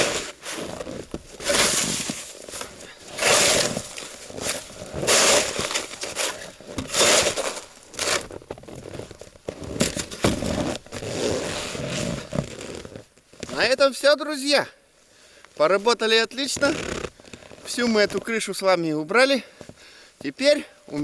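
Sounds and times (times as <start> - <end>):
snow shovel scraping snow: 0.0 - 13.7, 15.7 - 18.4.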